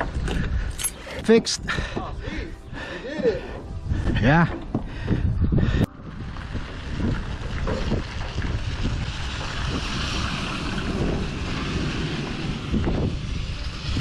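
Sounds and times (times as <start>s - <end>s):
wind buffeting microphone: 0.0s - 14.0s
boat engine low rumble: 2.6s - 14.0s
water rushing past: 6.0s - 14.0s.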